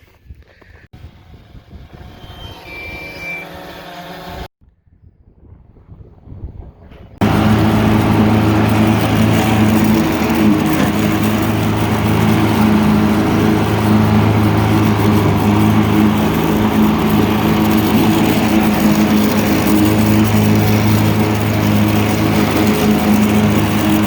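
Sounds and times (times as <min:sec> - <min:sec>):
engine running steadily: 0:07.2 - 0:24.0.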